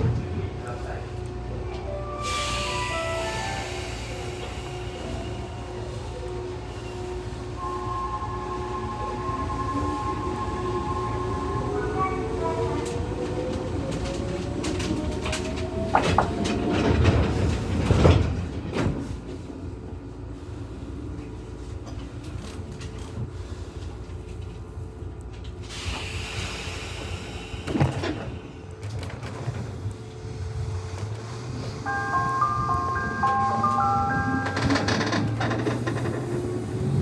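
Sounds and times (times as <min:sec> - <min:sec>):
heavy train clanks: 0:00.0 - 0:11.4, 0:12.2 - 0:37.0
train rumbling: 0:00.0 - 0:37.0
air hiss: 0:25.7 - 0:28.5
electronic chime melody: 0:31.9 - 0:34.9.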